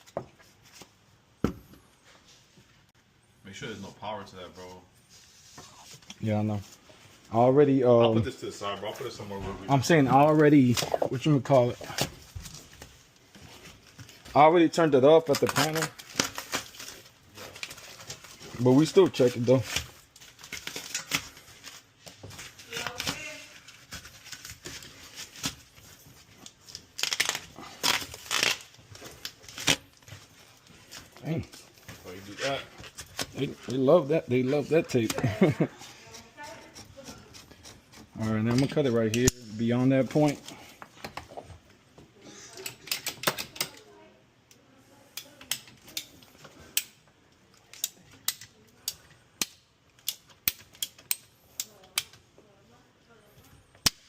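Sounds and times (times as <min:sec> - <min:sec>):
rustling and scraping: 0:04.3 - 0:07.6.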